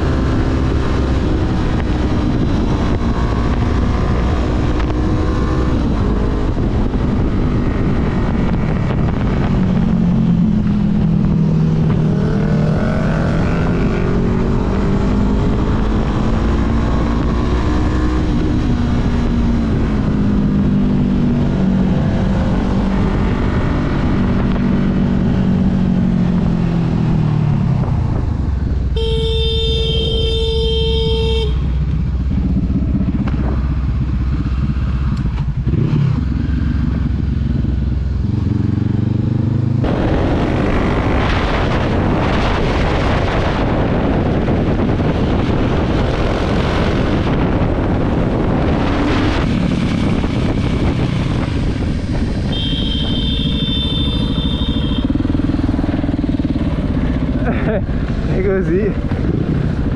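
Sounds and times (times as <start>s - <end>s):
wind rush: 0.0s - 29.0s, 31.6s - 59.9s
motorcycle engine revving: 0.0s - 59.9s
vehicle horn: 28.9s - 31.8s, 52.5s - 55.3s.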